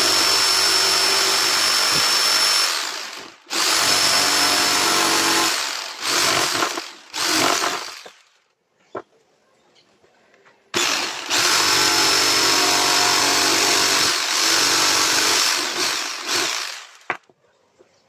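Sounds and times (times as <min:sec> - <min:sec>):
jigsaw cutting wood: 0:00.0 - 0:08.2, 0:10.8 - 0:17.2.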